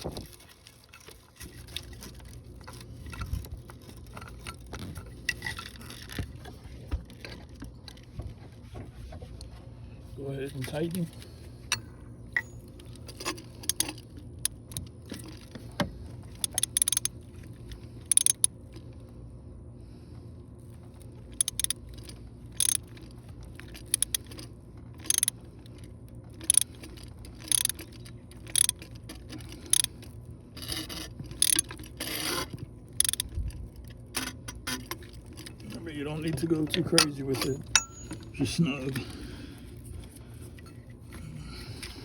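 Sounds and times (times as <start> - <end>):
low hum: 11.0 - 42.0
ratchet clicking: 13.2 - 14.8, 16.4 - 17.1, 18.0 - 18.5, 21.4 - 23.0, 23.6 - 24.4, 25.0 - 25.4, 26.4 - 26.8, 27.4 - 27.9, 28.5 - 28.9, 29.7 - 29.9, 31.4 - 33.3.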